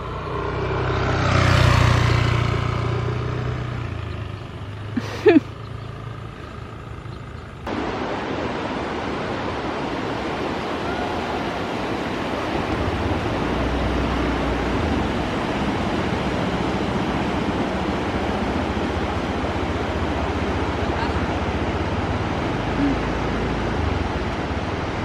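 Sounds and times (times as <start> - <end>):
loud steady rushing noise: 7.6 - 25.0.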